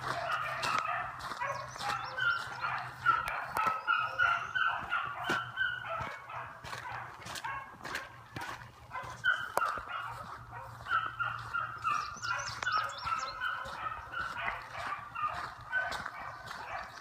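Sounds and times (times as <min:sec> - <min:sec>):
dogs baying and yelping: 0:00.0 - 0:17.0.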